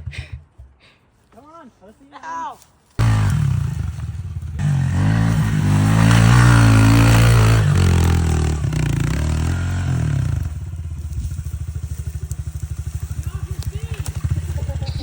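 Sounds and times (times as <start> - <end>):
small motorbike engine revving: 3.0 - 15.0.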